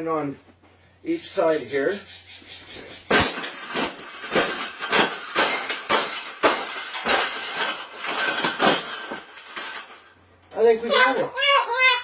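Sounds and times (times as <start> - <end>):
cage knocking and rattling: 3.0 - 10.1.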